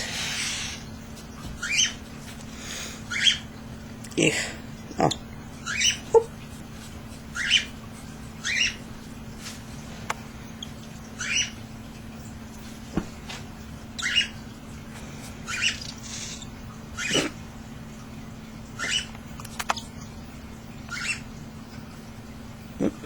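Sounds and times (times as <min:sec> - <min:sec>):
bird chicks cheeping: 0:00.4 - 0:02.1, 0:02.7 - 0:04.1, 0:04.8 - 0:06.2, 0:07.1 - 0:12.6, 0:13.8 - 0:17.3, 0:18.6 - 0:22.9.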